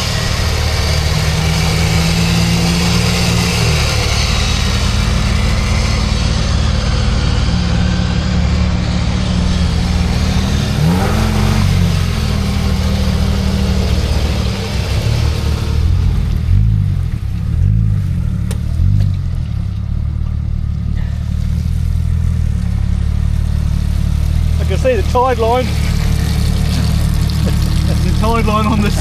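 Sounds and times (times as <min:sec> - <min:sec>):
engine idling and revving: 0:00.0 - 0:29.0.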